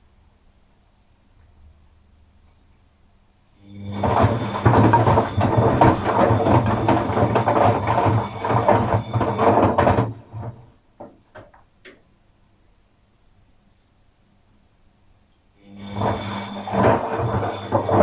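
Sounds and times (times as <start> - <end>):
washing machine drum churning: 3.8 - 12.0, 15.8 - 18.0.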